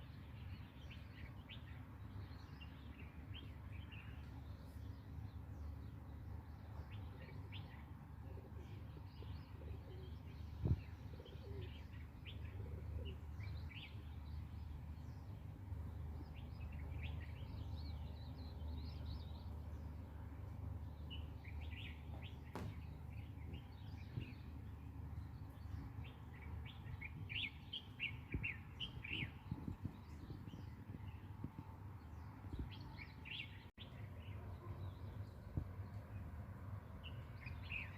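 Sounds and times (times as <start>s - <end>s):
small birds chirping: 0.0s - 37.9s
sharp knock: 22.5s - 22.9s.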